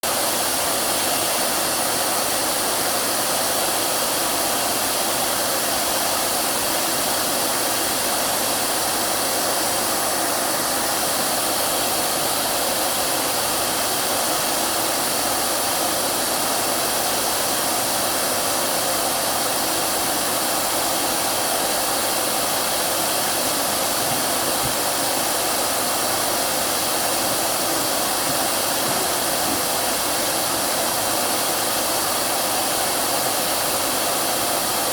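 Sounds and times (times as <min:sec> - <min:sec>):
hair dryer running: 0:00.3 - 0:16.9, 0:17.5 - 0:34.9.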